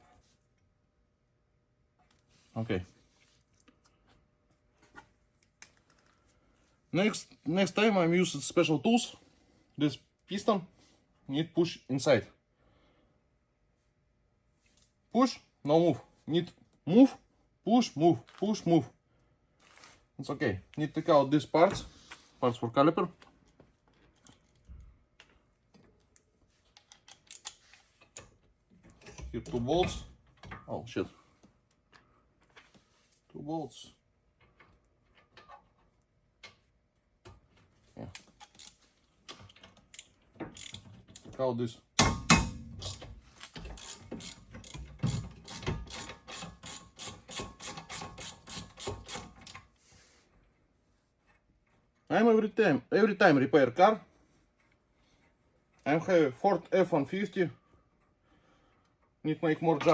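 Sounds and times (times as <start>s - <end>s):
metal tools clicking and knocking: 38.2s - 41.4s, 42.0s - 49.6s.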